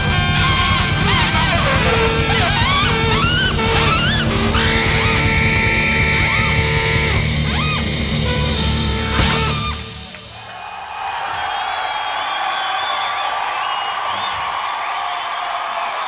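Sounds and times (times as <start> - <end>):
live band with drums and guitar: 0.0 - 10.6.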